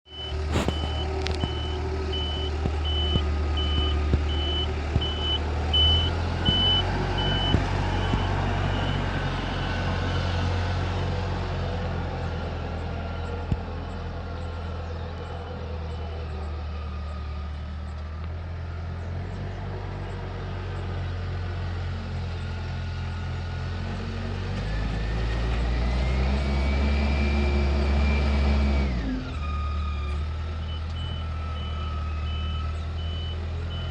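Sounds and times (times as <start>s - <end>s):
diesel engine running: 0.0s - 33.9s
reverse alarm beeping: 0.1s - 10.2s.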